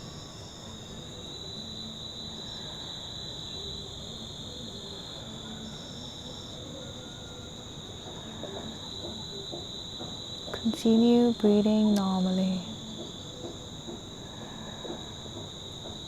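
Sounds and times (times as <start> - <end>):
insect chorus trilling: 0.0 - 16.0.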